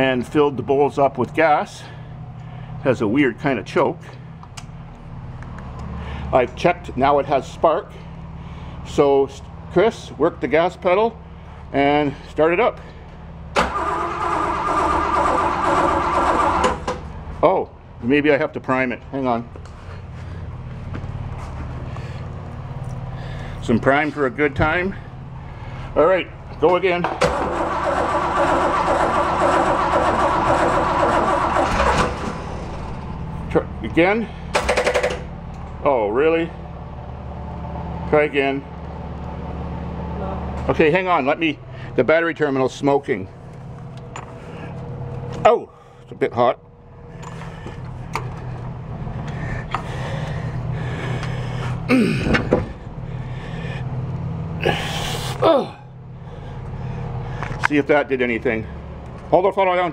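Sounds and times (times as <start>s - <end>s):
starter motor cranking engine: 13.5s - 17.1s, 27.0s - 33.2s, 34.3s - 35.6s
short falling voice: 51.9s - 52.7s, 54.6s - 55.9s.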